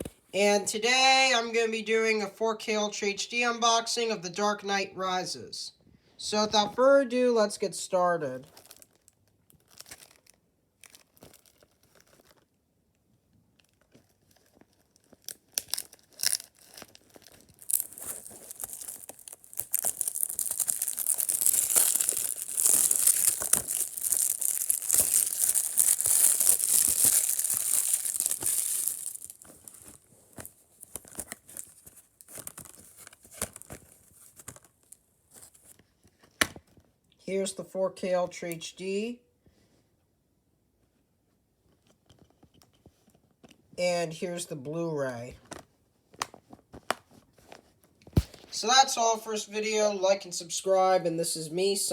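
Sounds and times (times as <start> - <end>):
plastic wrap tearing and crinkling: 8.4 - 12.6, 13.5 - 36.8.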